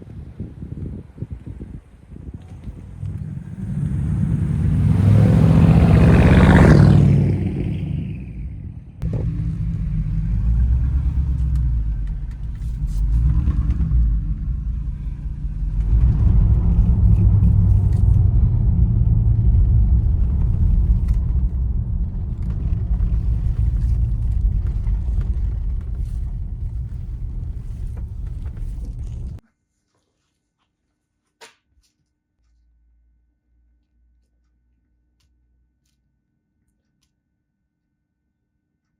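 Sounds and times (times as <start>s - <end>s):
car engine rumbling: 0.3s - 29.4s.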